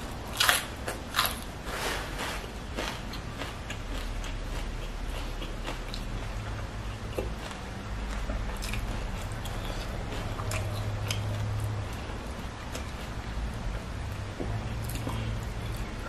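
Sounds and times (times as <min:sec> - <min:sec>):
person chewing food: 0:00.0 - 0:16.0
steady low hum: 0:00.0 - 0:16.0.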